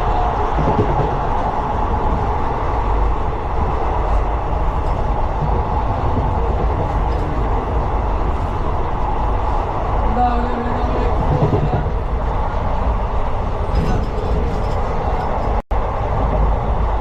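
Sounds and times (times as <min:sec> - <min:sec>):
train rumbling at speed: 0:00.0 - 0:17.0
wind on microphone: 0:00.0 - 0:17.0.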